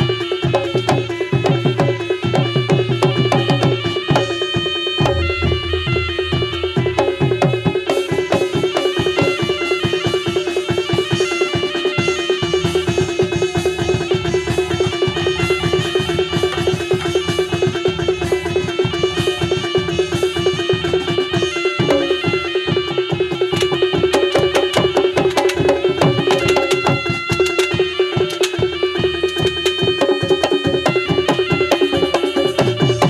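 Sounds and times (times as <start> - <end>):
drums and struck percussion: 0.0 - 33.0
high struck notes: 4.6 - 8.0
steady held tone: 4.7 - 7.3.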